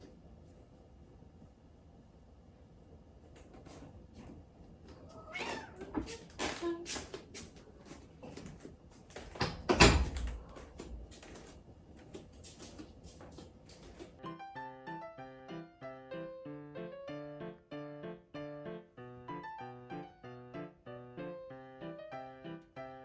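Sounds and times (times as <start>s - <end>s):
cat meowing and crying: 5.1s - 6.2s.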